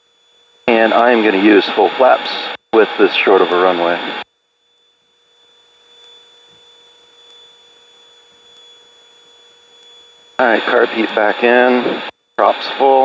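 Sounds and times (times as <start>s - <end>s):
faint electrical hum and whine: 0.0s - 13.0s
light hiss: 4.1s - 12.6s.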